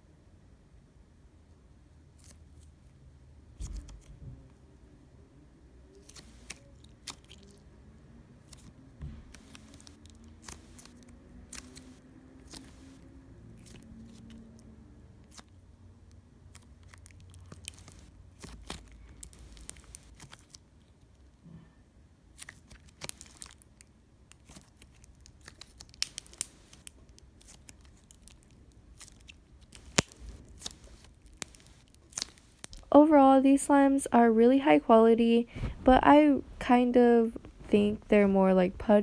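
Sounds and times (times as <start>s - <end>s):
slime sticky clicks and pops: 6.0s - 7.6s, 8.5s - 14.4s, 16.6s - 20.6s, 24.3s - 32.9s.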